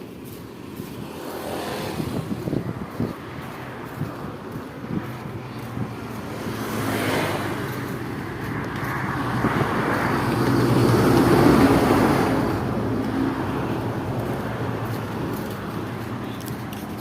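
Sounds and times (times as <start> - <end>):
car passing by: 0.7 - 17.0.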